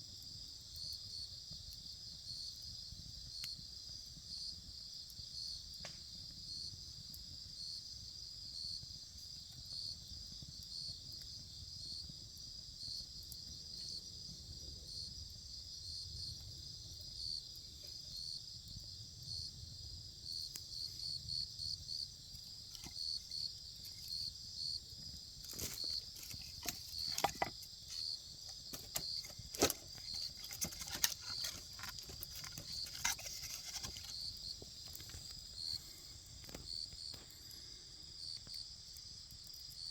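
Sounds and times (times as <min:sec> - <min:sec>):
insects chirring: 0:00.1 - 0:39.9
wood fire crackling and popping: 0:00.2 - 0:07.3, 0:21.8 - 0:37.8.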